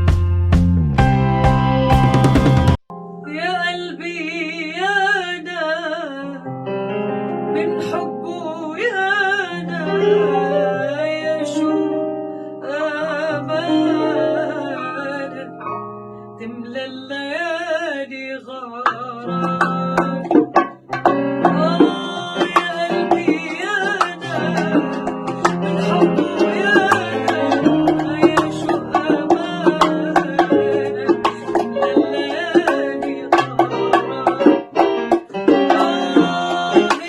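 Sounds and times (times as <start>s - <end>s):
sustained bass line: 0.0s - 2.8s
keyboard chords: 0.0s - 4.6s, 9.6s - 16.5s, 19.3s - 37.0s
woman singing melismatic melody: 3.0s - 6.5s, 7.4s - 20.2s, 21.3s - 37.0s.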